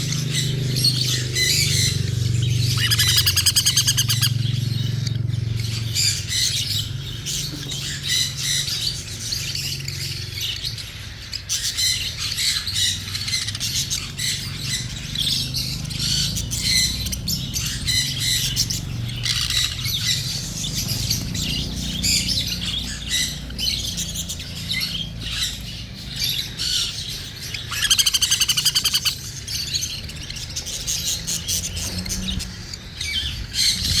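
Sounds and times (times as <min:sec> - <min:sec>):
cockatiel squawking and chirping: 0:02.7 - 0:04.3, 0:16.0 - 0:34.0.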